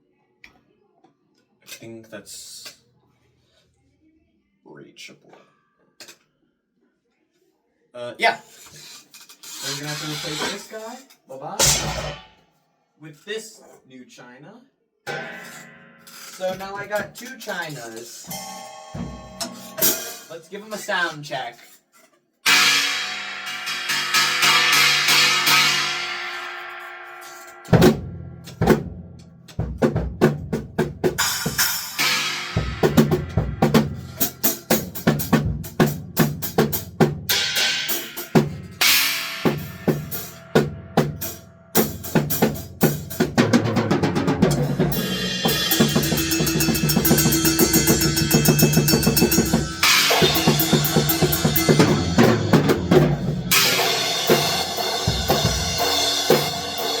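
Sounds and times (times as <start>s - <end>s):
china cymbal crashes: 11.6s - 12.4s, 18.2s - 20.3s, 22.5s - 28.6s, 31.2s - 35.2s, 37.3s - 43.2s, 44.6s - 57.0s
bass drum hits: 44.4s - 54.5s.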